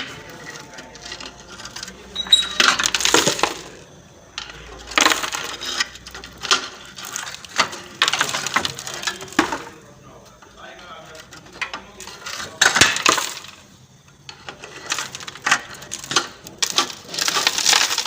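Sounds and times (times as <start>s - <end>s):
metal tools clinking: 0.0s - 9.8s.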